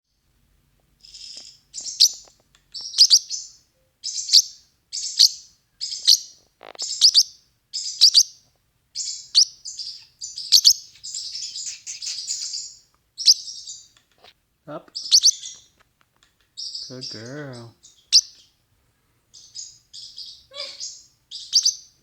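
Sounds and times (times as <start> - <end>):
parrotlet harsh chirping: 1.0 - 8.4, 9.0 - 13.9, 15.0 - 15.7, 16.6 - 18.5, 19.3 - 21.9.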